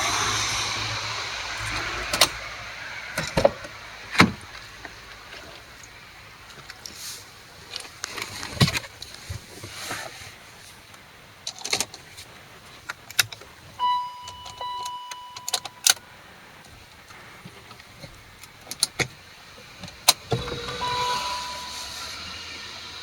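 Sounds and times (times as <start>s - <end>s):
electronic chime: 13.8s - 15.9s, 20.4s - 22.5s
keys and switches clicking: 14.0s - 16.0s
steady whine: 20.2s - 23.0s.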